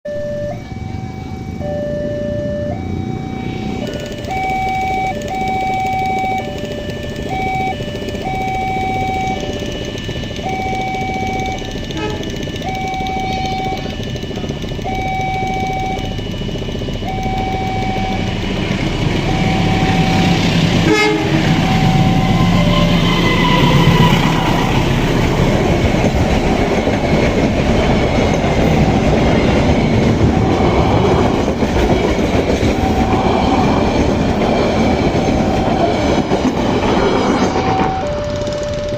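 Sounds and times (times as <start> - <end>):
level crossing alarm beeping: 0.1 - 38.9
train wheels rumbling on rail: 0.1 - 38.9
train horn: 11.4 - 12.4, 19.2 - 24.3.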